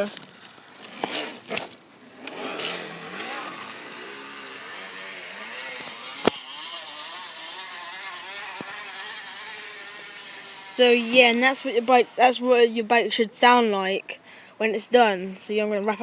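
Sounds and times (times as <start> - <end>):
plastic bottle buzzing on bicycle wheel: 0.0 - 12.8.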